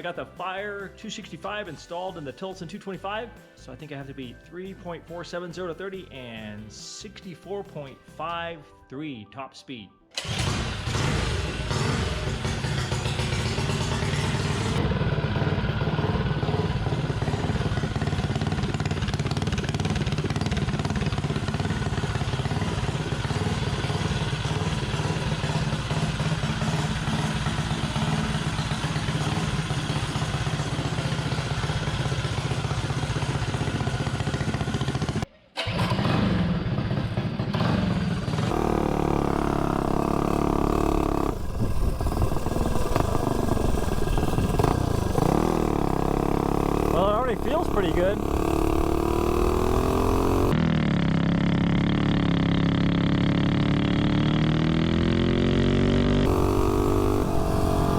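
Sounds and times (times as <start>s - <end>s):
mini bike engine running: 10.2s - 57.9s.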